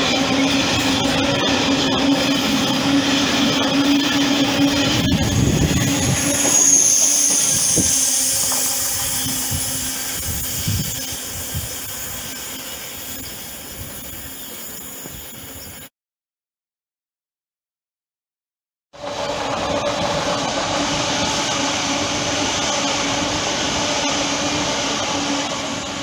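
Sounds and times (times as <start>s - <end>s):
train clank: 0.0s - 15.8s
freight train rolling past: 0.0s - 15.9s, 19.0s - 26.0s
high squeal: 0.0s - 15.9s.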